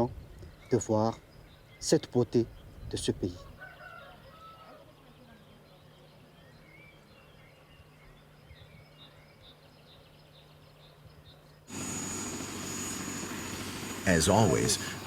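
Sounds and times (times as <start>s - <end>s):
aircraft engine whine: 11.7s - 15.0s.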